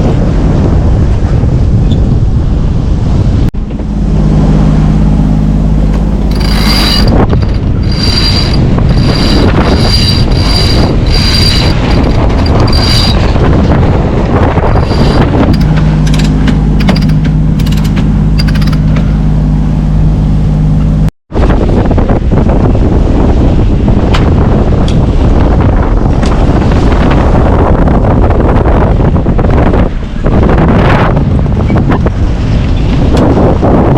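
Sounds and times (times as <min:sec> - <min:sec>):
wind buffeting microphone: 0:00.0 - 0:20.2, 0:21.3 - 0:33.9
boat engine running: 0:03.2 - 0:29.6
high squeak: 0:06.3 - 0:13.3, 0:14.8 - 0:15.7.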